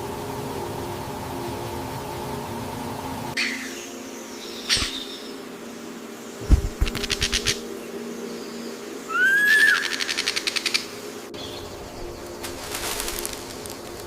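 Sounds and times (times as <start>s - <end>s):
bird rattling ticks: 6.6s - 7.6s
bird whistle rising and falling: 9.1s - 10.1s.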